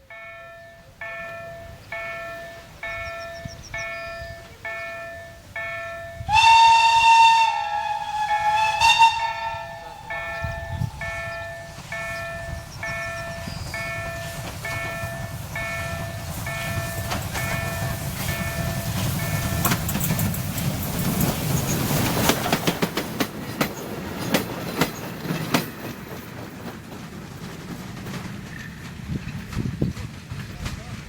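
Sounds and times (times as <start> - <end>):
level crossing warning bell: 0.0 - 7.0, 8.2 - 21.3
train rumbling: 0.0 - 31.0
steam locomotive whistle blast: 6.0 - 14.4.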